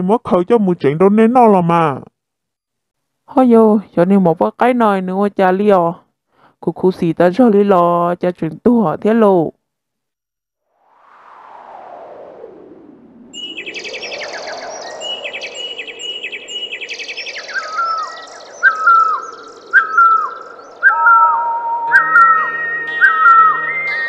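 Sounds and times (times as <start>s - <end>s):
falling whistled note: 10.7s - 24.0s
birds chirping and trilling: 13.4s - 24.0s.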